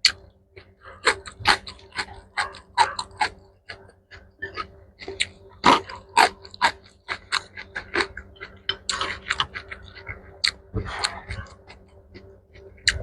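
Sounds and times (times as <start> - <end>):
crunchy wet chewing: 0.0 - 13.0.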